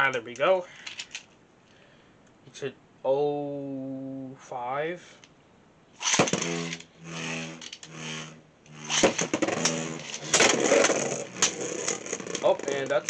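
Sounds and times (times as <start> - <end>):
rattling whir of spinning tops: 6.0 - 13.0
spinning tops clashing: 6.0 - 13.0.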